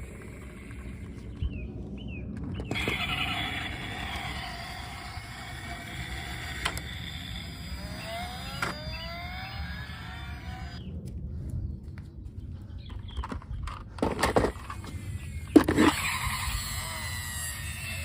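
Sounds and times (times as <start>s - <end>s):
toy electric motor whirring: 0.0s - 1.3s, 2.7s - 10.8s, 14.0s - 18.0s.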